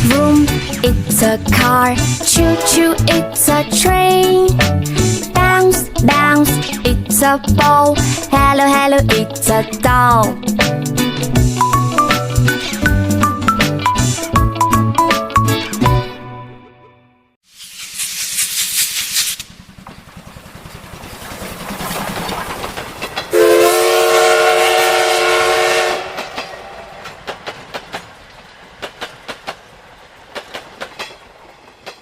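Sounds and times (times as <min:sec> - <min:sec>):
steam whistle blowing: 0:02.4 - 0:03.0, 0:23.3 - 0:26.3
steam hissing: 0:17.5 - 0:19.8
wheels clicking over rail joints: 0:19.3 - 0:23.7, 0:25.8 - 0:32.0.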